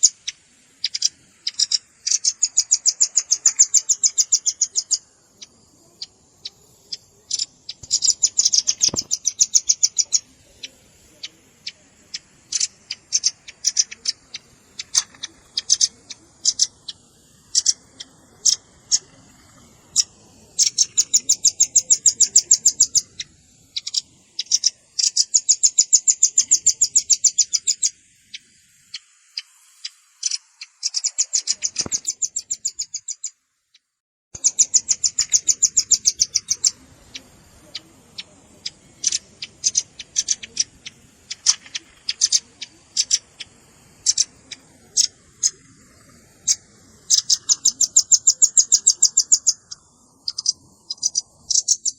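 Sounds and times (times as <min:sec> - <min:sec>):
bird rattling trills: 0:00.0 - 0:33.3, 0:34.4 - 0:51.9
bird sharp chips: 0:07.2 - 0:11.4, 0:12.1 - 0:19.2, 0:30.2 - 0:33.2, 0:34.4 - 0:45.7, 0:46.4 - 0:51.9.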